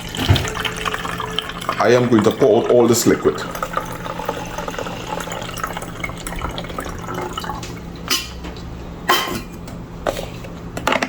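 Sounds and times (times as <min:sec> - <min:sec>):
liquid trickling into container: 0:00.0 - 0:07.9.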